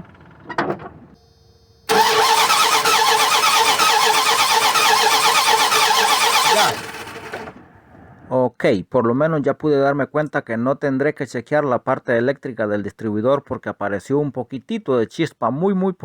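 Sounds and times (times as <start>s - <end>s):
starter cranking engine: 1.9s - 7.6s.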